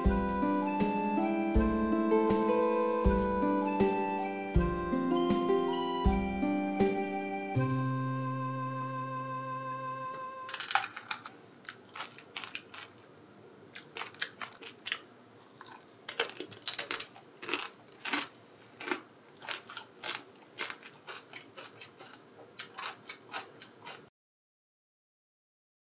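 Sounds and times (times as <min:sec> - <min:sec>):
person chewing crunchy food: 0:10.5 - 0:24.1.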